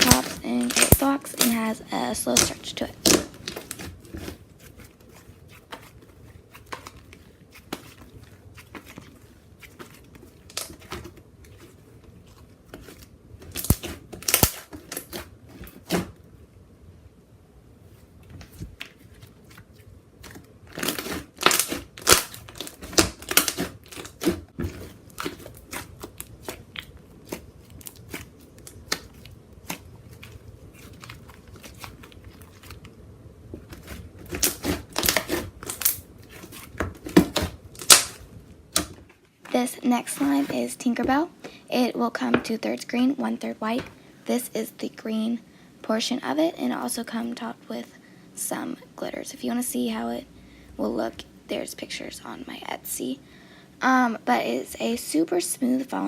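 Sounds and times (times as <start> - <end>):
clay slime squished by hand: 0.0 - 16.2, 18.2 - 41.5.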